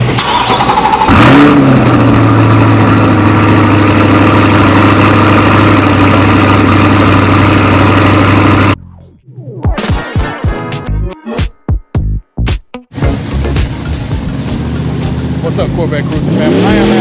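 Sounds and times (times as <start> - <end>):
car engine starting and idling: 0.0 - 8.8, 12.9 - 17.0.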